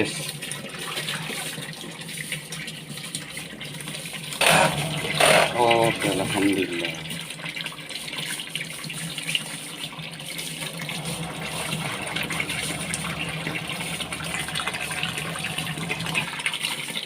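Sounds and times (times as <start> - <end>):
water rushing through drain: 0.0 - 17.0
steady low hum: 10.8 - 16.3.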